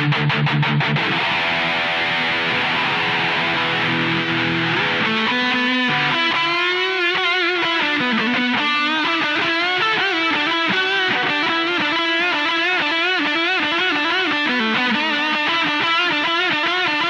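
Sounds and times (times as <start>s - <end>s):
distorted electric guitar lead: 0.0s - 17.0s.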